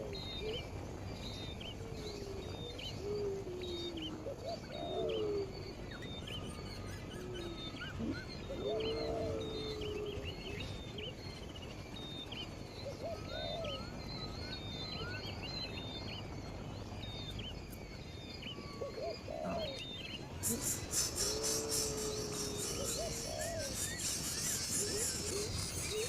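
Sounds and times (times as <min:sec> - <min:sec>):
birds chirping: 0:00.0 - 0:26.0
low hoot-like bird call: 0:18.5 - 0:26.0.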